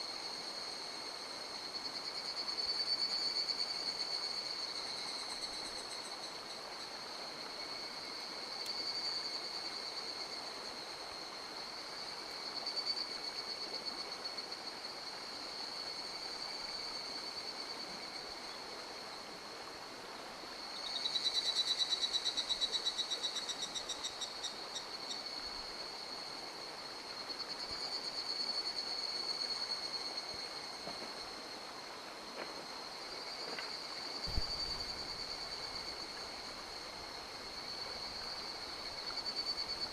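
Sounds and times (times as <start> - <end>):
mountain stream running: 0.0 - 39.9
short low thump: 34.3 - 34.8.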